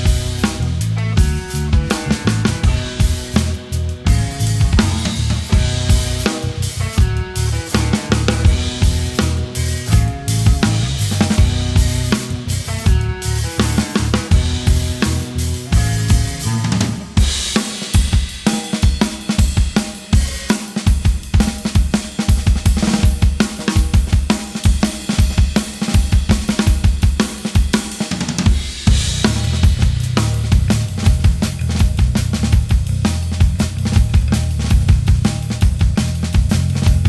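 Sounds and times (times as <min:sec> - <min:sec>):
heavy sustained bass: 0:00.0 - 0:16.7
live band music: 0:00.0 - 0:18.0
fast drum kit with cymbals: 0:00.0 - 0:37.0.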